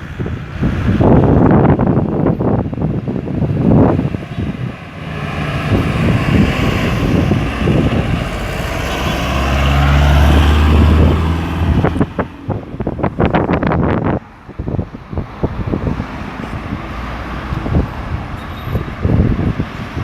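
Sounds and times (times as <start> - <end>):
heavy vehicle engine humming: 0.0 - 20.0
vehicles passing with tyre hiss: 0.0 - 20.0
wind buffeting microphone: 0.0 - 20.0.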